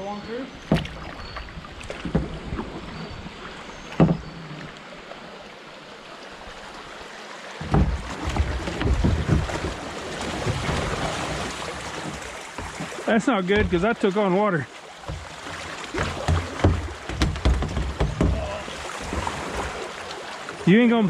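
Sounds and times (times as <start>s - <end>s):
water rushing and splashing: 0.0s - 21.0s
rumbling bumps: 7.6s - 14.1s, 15.0s - 19.8s.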